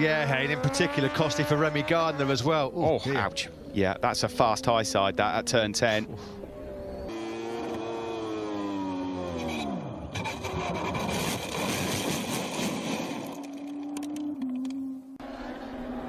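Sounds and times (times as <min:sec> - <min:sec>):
racing motorcycle engine: 0:00.0 - 0:16.0
rough scraping noise: 0:10.1 - 0:13.7.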